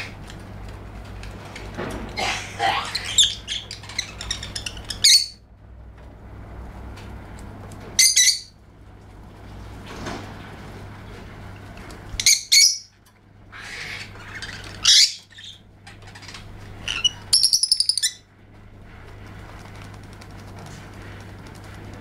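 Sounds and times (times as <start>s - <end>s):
lovebird shrill chirps: 12.2s - 12.9s, 16.9s - 18.2s.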